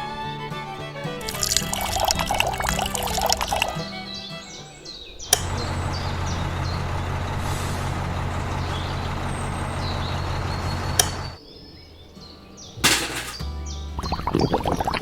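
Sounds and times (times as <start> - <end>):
sharp click: 11.0 - 11.2.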